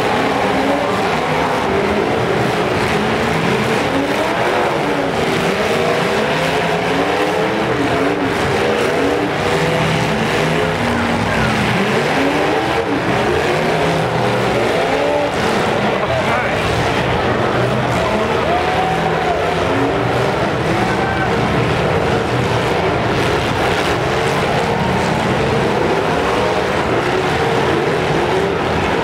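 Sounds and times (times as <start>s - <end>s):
car engines revving hard: 0.0s - 29.0s.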